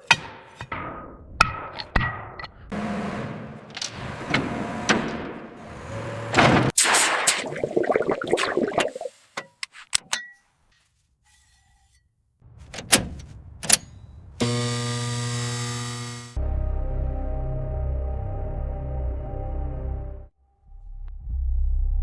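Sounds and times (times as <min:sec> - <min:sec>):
low musical drone: 0:16.4 - 0:21.4.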